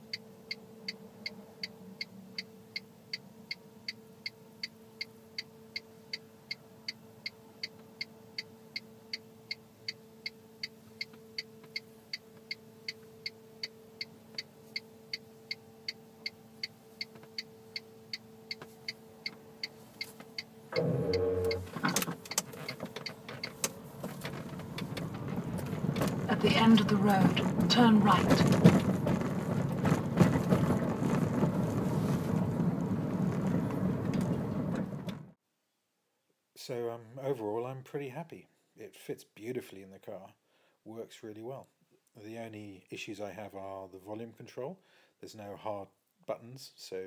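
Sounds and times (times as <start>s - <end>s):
faint steady hum: 0.0s - 32.4s
turn signal ticking: 0.0s - 35.2s.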